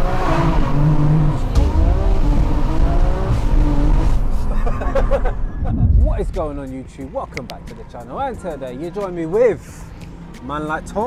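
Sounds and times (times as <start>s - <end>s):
car engine accelerating hard: 0.0s - 6.5s.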